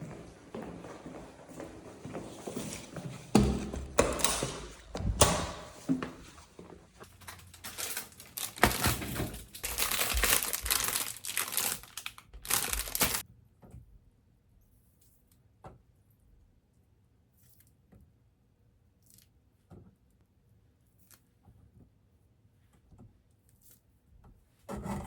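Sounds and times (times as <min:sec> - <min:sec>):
crinkling and rustling handling noise: 0:01.7 - 0:13.2.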